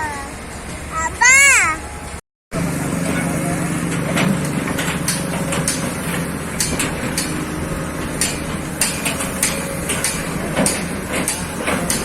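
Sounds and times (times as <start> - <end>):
excavator diesel engine running: 0.0 - 12.0
machine knocks and clanks: 2.6 - 12.0.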